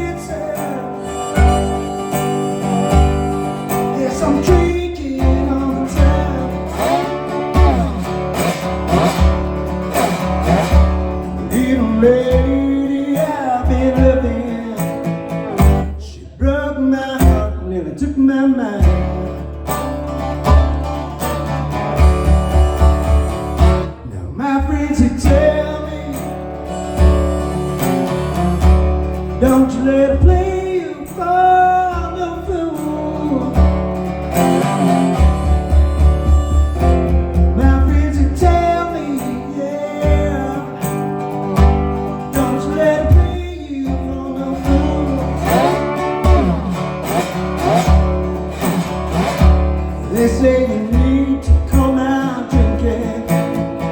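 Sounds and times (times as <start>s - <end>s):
harmonica solo: 0.0s - 13.6s, 19.6s - 24.2s, 25.4s - 30.8s, 33.0s - 43.4s
plucked resonator guitar: 0.0s - 16.0s, 18.7s - 53.9s
steady low beat: 20.4s - 24.0s, 33.6s - 38.5s.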